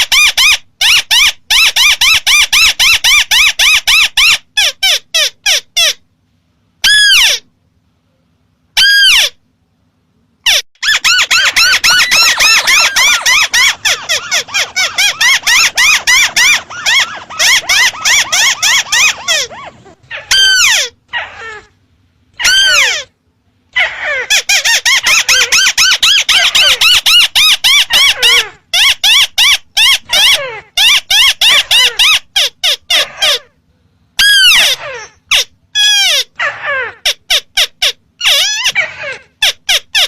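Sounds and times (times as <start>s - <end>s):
bird call squeaky notes: 10.5s - 21.6s.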